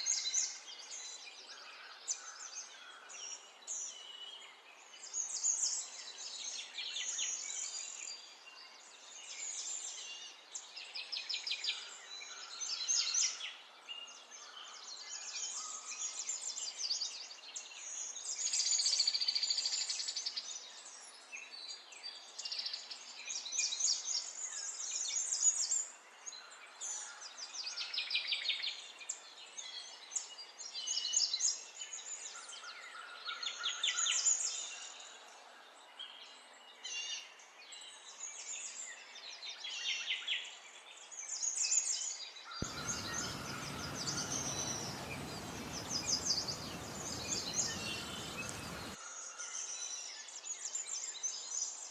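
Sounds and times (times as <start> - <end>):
songbirds singing: 42.6 - 49.0.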